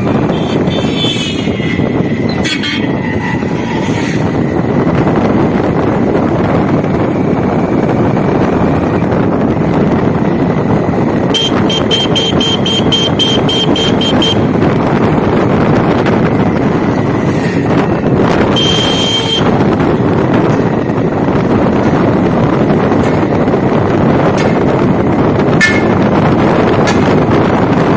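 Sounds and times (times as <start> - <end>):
motorcycle engine and road noise: 0.0 - 27.9
short high beeps: 11.4 - 14.4, 18.6 - 19.4.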